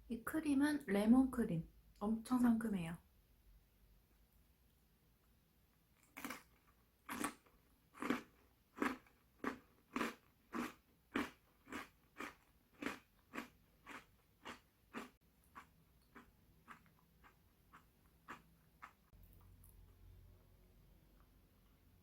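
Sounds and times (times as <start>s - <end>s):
person chewing crisp pastry: 6.0s - 21.9s.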